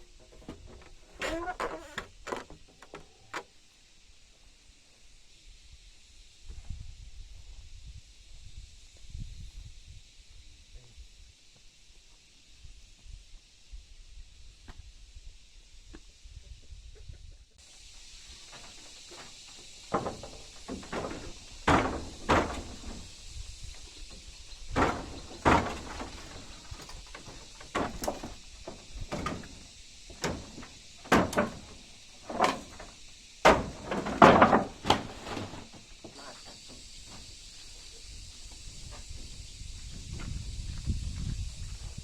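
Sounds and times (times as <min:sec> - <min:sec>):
knocks and thuds: 0:18.3 - 0:37.2.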